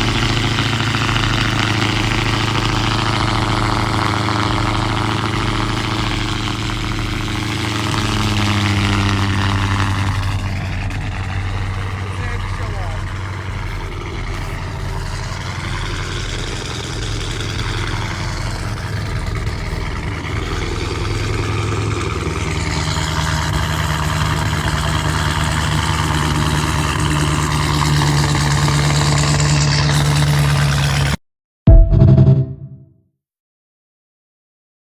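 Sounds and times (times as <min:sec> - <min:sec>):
car engine idling: 0:00.0 - 0:30.8.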